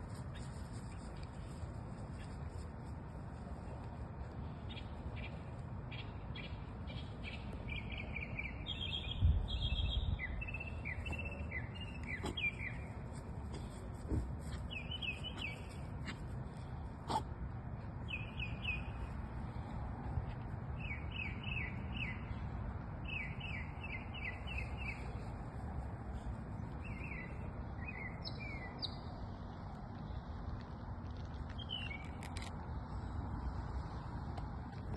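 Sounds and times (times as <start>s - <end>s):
songbirds singing: 3.7s - 34.9s
high bird chatter: 4.7s - 13.8s, 14.4s - 16.2s.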